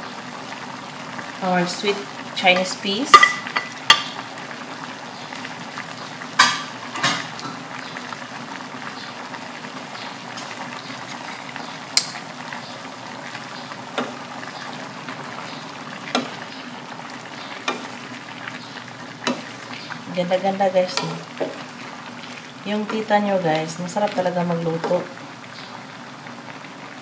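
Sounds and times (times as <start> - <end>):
food sizzling in a wok: 0.0 - 27.0
wooden spatula stirring in pan: 10.3 - 12.2, 13.3 - 25.2.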